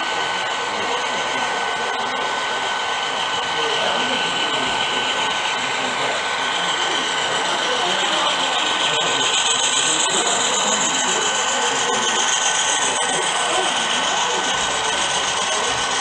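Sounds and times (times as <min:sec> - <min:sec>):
model train motor whine: 0:00.0 - 0:16.0.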